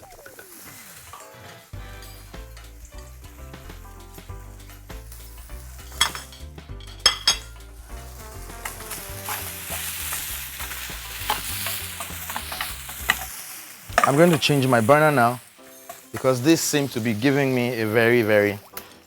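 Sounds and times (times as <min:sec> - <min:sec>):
fish sizzling in a pan: 0:00.0 - 0:19.0.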